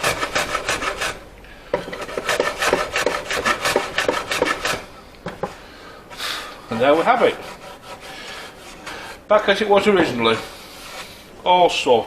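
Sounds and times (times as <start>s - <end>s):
rasp on wood: 0.0s - 1.2s, 1.8s - 4.9s, 6.7s - 9.2s.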